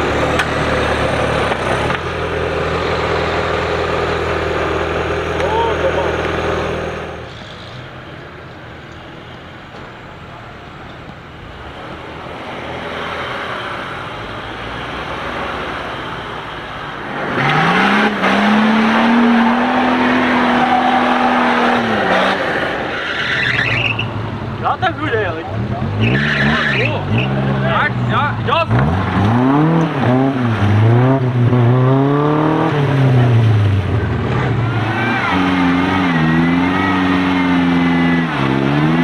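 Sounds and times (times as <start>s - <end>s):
off-road vehicle engine revving: 0.0s - 7.7s, 17.0s - 39.0s.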